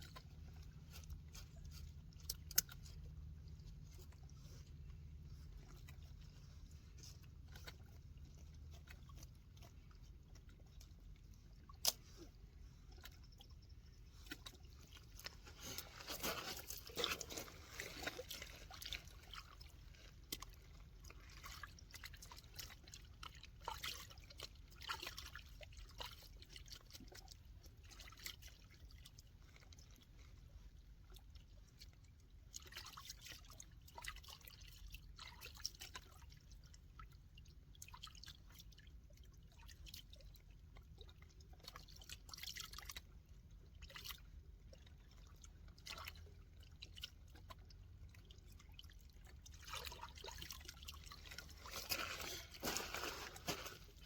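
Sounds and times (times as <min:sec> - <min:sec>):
small water splashes: 0:00.0 - 0:54.0
water dripping and trickling: 0:00.0 - 0:54.0.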